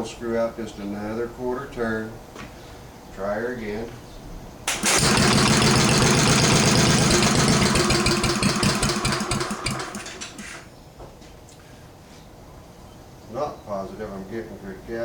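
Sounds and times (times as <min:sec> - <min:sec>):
single-cylinder engine running: 0:04.7 - 0:10.7.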